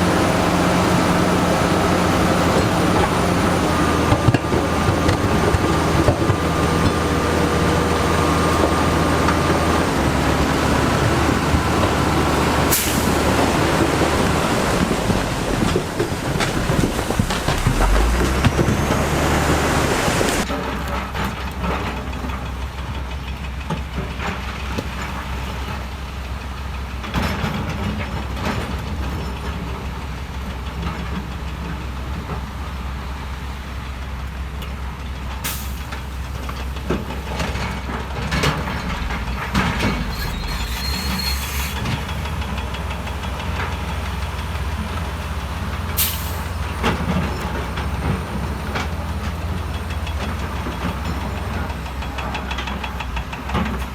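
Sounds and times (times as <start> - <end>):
loud rush of noise: 0.0 - 20.5, 37.8 - 42.7
diesel construction machinery droning: 0.0 - 53.9.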